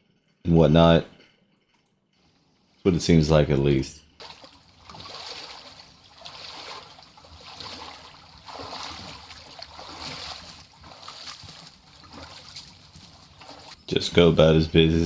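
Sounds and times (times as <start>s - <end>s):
lake water lapping: 4.2s - 14.8s.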